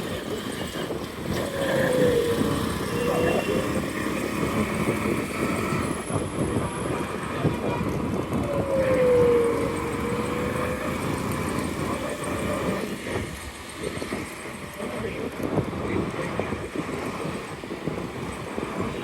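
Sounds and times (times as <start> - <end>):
road and traffic noise: 0.0 - 19.0
tone sliding downward: 1.3 - 13.2.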